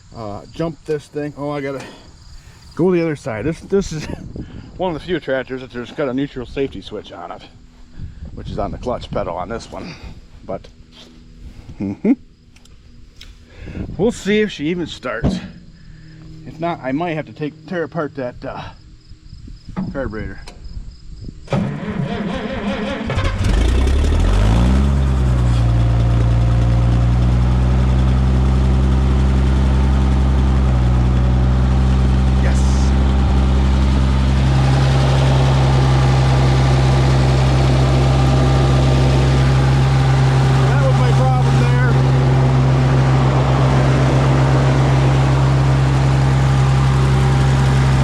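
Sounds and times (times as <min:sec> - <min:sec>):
tractor engine running: 0:00.0 - 0:20.4, 0:21.5 - 0:48.0
starter cranking engine: 0:21.5 - 0:29.4.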